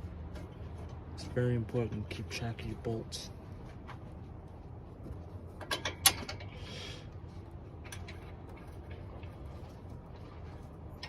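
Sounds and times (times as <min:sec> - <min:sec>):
steady low hum: 0:00.0 - 0:11.0
hand tools and bolts clinking: 0:05.6 - 0:06.6.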